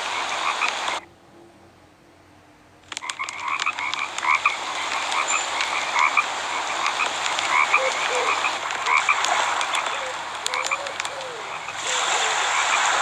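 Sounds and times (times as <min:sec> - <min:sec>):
frogs croaking: 0:00.0 - 0:01.1, 0:02.9 - 0:12.9
sharp clicks: 0:02.8 - 0:05.7, 0:07.0 - 0:11.3.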